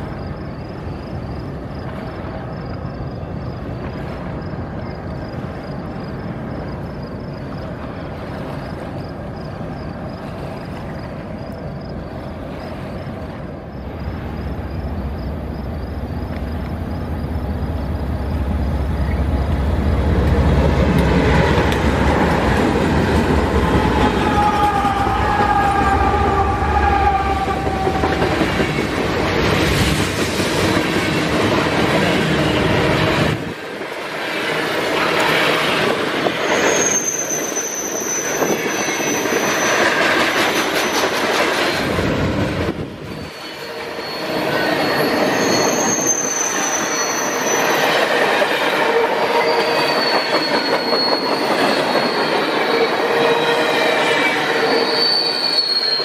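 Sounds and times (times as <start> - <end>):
locomotive engine drone: 13.5 - 29.8.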